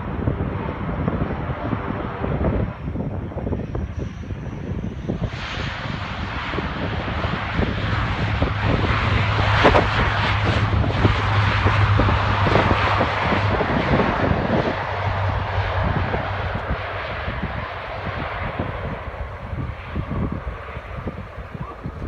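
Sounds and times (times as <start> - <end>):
aircraft engine roar: 0.0 - 22.0
propeller drone: 0.0 - 22.0.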